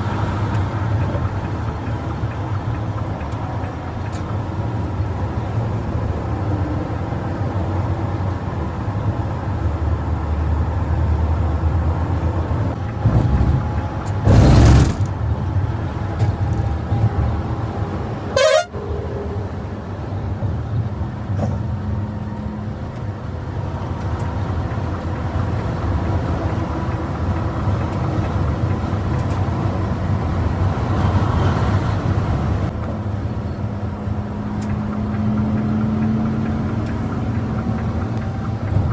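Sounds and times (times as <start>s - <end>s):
bus engine and road noise: 0.0s - 38.9s
loud burst: 14.2s - 15.2s
horn honking: 18.3s - 19.0s.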